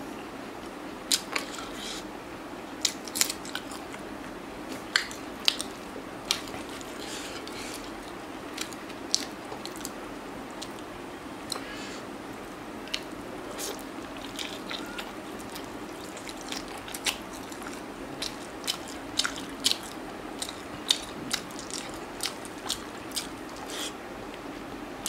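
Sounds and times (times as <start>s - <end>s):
steady low hiss: 0.0s - 25.0s
person chewing food: 2.8s - 4.0s, 4.7s - 11.7s, 12.8s - 24.0s
wet clicks and smacks: 4.7s - 6.6s.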